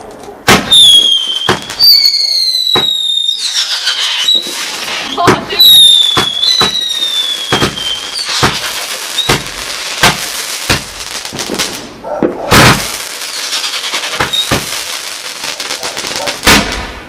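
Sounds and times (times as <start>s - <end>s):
fireworks bangs: 0.0s - 17.0s
fireworks crackling: 0.0s - 17.0s
fireworks whistles: 0.5s - 11.8s, 12.4s - 17.0s.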